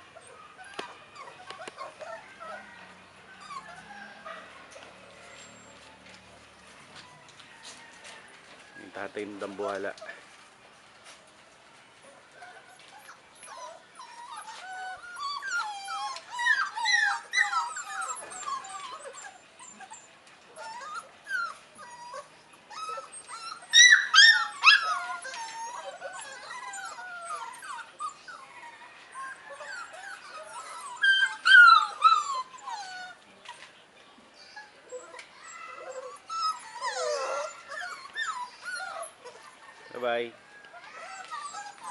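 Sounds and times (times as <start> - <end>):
puppies whining and whimpering: 0.0 - 7.7, 12.2 - 33.7, 34.4 - 41.9
puppy yelps: 13.0 - 33.2, 34.6 - 39.5, 40.7 - 41.9.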